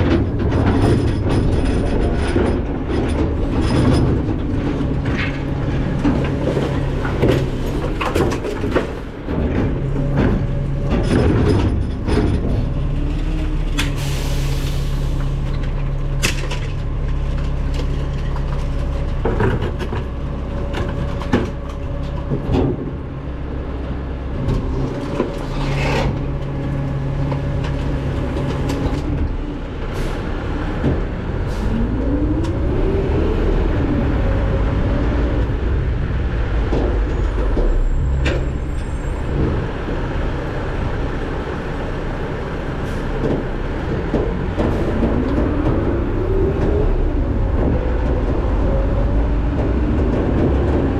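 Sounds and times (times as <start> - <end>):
metal clanks and knocks: 0.0 - 14.2, 15.6 - 23.2, 42.9 - 50.9
garbage truck diesel engine: 0.0 - 50.9.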